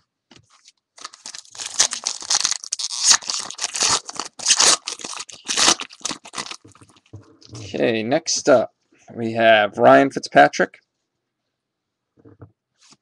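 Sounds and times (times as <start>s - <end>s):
foil wrapper tearing and crinkling: 1.0s - 6.9s.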